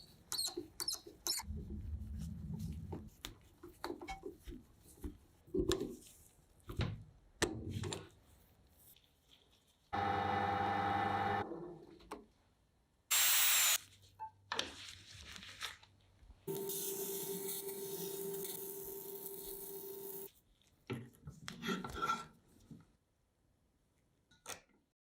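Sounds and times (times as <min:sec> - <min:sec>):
power tool running: 0:10.0 - 0:11.4, 0:13.1 - 0:13.8, 0:16.5 - 0:20.3.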